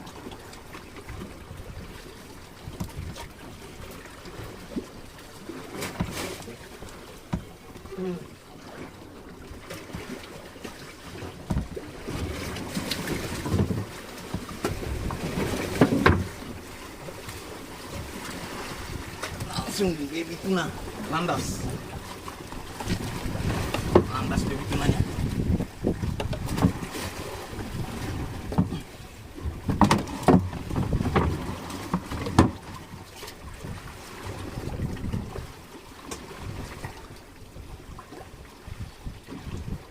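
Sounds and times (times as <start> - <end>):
boat hull slapping waves: 0.0 - 39.9
wind: 0.0 - 39.9
knocks on wooden boat: 7.3 - 7.5, 11.4 - 11.8, 13.4 - 16.4, 22.9 - 24.2, 25.5 - 26.8, 28.5 - 28.8, 29.4 - 32.6
wind buffeting microphone: 18.8 - 31.6, 33.4 - 35.6, 38.6 - 39.9.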